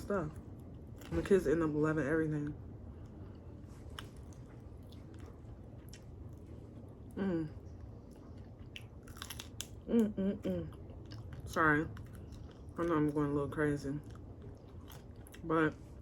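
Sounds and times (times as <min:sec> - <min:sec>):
chewing crispy chicken wings: 0:07.7 - 0:16.0.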